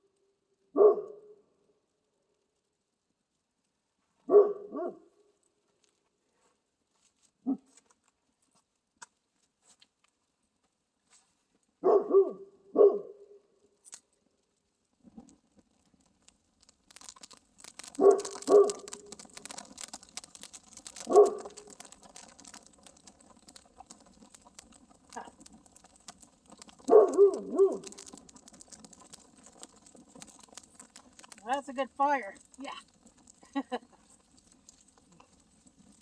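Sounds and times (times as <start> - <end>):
dog barking: 0.7 - 1.3, 4.3 - 5.1, 7.5 - 7.7, 11.8 - 13.2, 18.0 - 18.9, 21.1 - 21.5, 26.8 - 27.9
campfire crackling and popping: 12.4 - 36.0.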